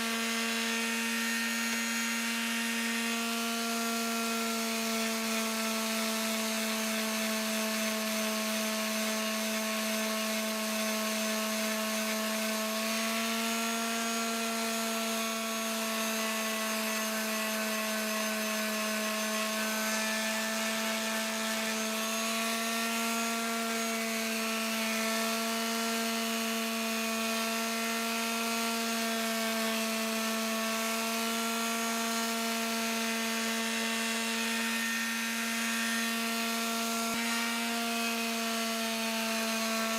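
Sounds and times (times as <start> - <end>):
electric sander motor hum: 0.0 - 39.9.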